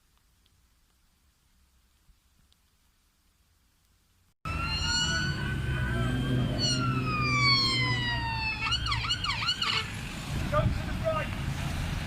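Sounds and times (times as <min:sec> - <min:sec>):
police siren wailing and yelping: 0:04.5 - 0:10.0
low vehicle rumble: 0:04.5 - 0:12.0.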